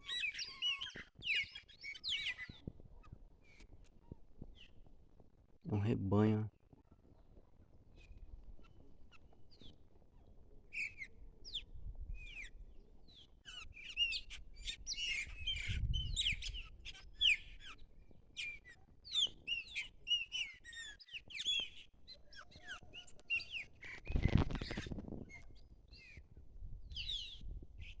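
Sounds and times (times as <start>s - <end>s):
blackbirds calling in chorus: 0.0s - 2.6s, 13.5s - 26.2s.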